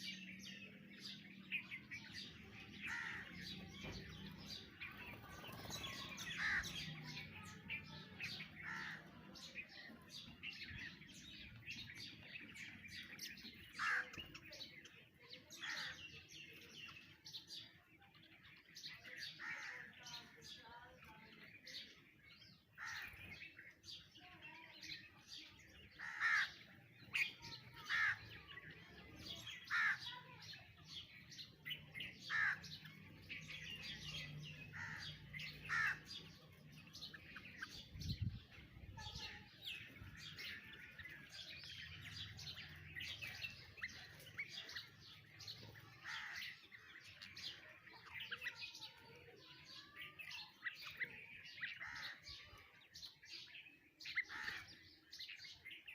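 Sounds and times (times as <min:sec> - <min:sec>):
birds chirping and calling: 0:00.0 - 0:55.9
loud short bird calls: 0:34.6 - 0:36.3.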